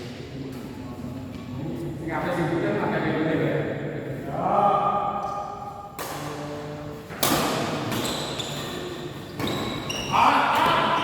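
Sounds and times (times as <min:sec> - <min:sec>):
rackets hitting shuttlecock: 0:05.2 - 0:08.4.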